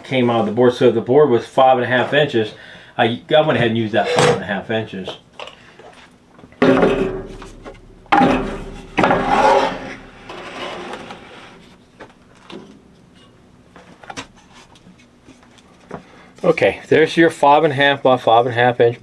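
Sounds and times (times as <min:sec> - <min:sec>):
wooden boards knocking: 0:06.6 - 0:10.4.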